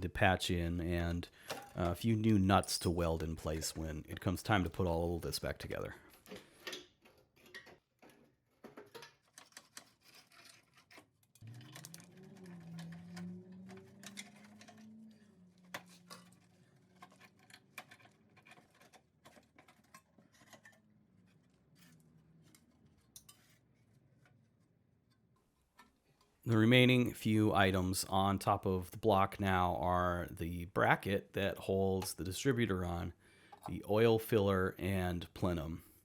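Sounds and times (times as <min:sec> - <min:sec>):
metal tools clinking: 0:01.4 - 0:03.9.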